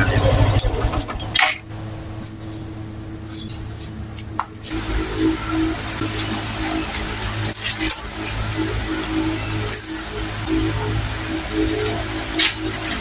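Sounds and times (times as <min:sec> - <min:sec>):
motorcycle engine idling: 0:00.0 - 0:13.0
handling noise: 0:00.4 - 0:10.4.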